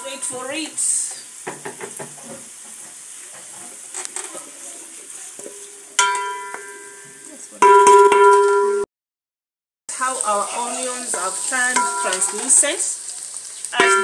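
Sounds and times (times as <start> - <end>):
onions sizzling in oil: 0.0 - 7.6, 9.9 - 14.0
bell-like metallic tones: 6.0 - 8.8, 11.7 - 12.4.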